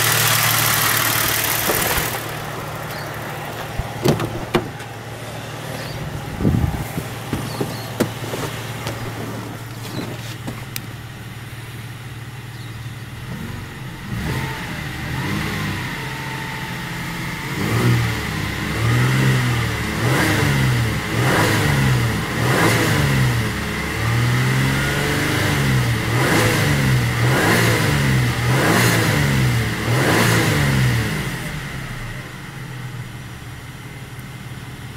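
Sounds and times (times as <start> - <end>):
car engine idling and revving: 0.0 - 34.9
sharp engine knocks: 0.9 - 5.2, 5.8 - 10.9.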